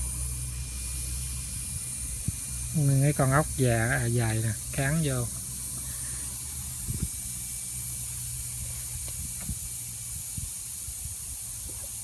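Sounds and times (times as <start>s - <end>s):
air hissing out of a tyre: 0.0s - 12.0s.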